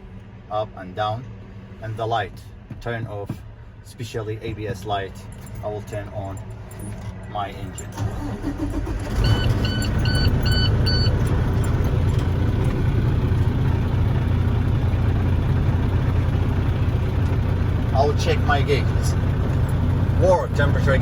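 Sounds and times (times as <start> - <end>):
diesel engine cranking and idling: 1.3 - 21.0
dashboard warning chime beeps: 9.2 - 11.8.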